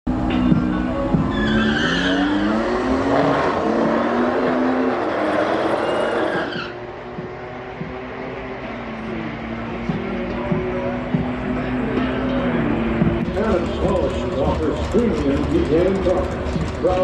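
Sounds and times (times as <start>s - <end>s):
car engine accelerating hard: 0.1s - 17.0s
tyre squeal: 0.5s - 2.7s, 5.6s - 6.8s.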